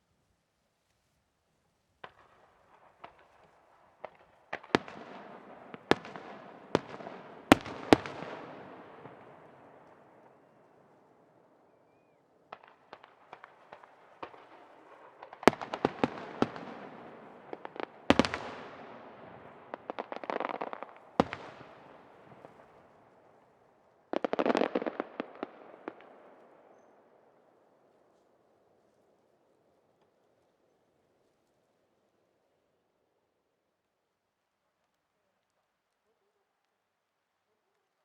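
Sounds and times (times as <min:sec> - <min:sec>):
firework crackling: 0:02.1 - 0:09.9, 0:12.5 - 0:22.8.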